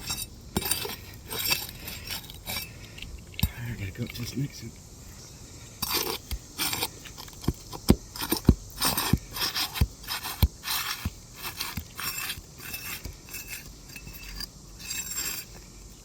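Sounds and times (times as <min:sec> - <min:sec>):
pry tool scraping under shingles: 0:00.0 - 0:04.4, 0:05.8 - 0:16.0.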